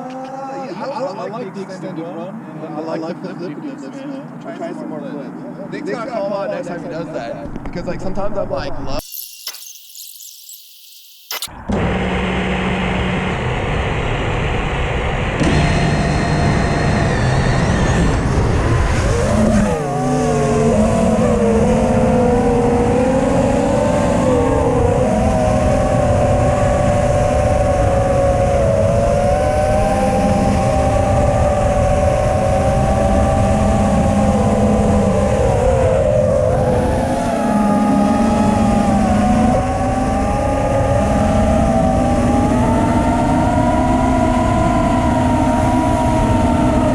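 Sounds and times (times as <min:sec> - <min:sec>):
quadcopter motors whining: 0:09.0 - 0:12.0, 0:15.4 - 0:46.9.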